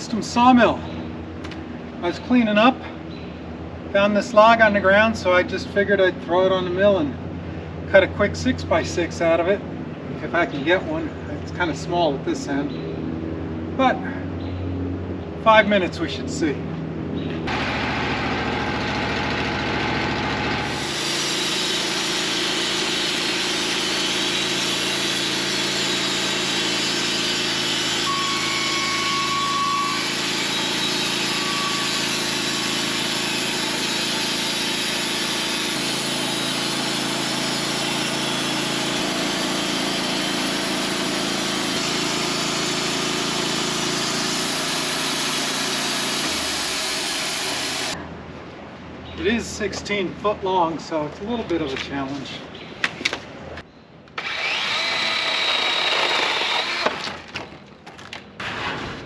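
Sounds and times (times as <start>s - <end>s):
saw blade cutting log: 17.5s - 48.0s, 54.2s - 57.4s
sawmill engine running: 17.5s - 48.0s, 54.2s - 57.1s
high whine: 28.0s - 32.2s.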